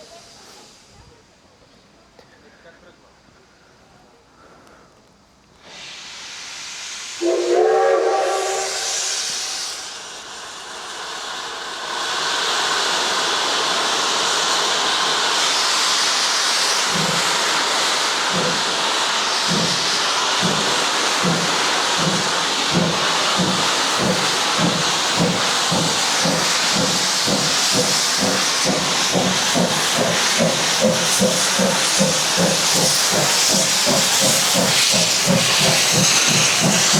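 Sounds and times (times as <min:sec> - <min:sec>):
steam hissing: 0:00.0 - 0:02.0, 0:05.5 - 0:36.9
steam locomotive whistle: 0:07.2 - 0:09.9
locomotive exhaust chuffs: 0:13.8 - 0:36.9.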